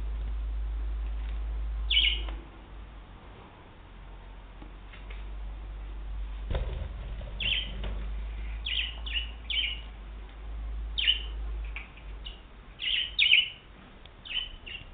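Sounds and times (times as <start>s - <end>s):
steady low rumble: 0.0s - 4.6s, 5.3s - 12.8s
budgerigar chirping: 1.9s - 2.3s, 8.6s - 9.8s, 11.0s - 11.3s, 12.2s - 13.6s, 14.2s - 14.9s.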